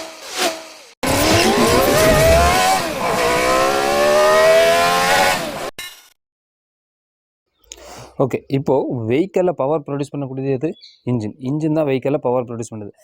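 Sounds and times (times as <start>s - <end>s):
car engine revving: 0.0s - 5.7s.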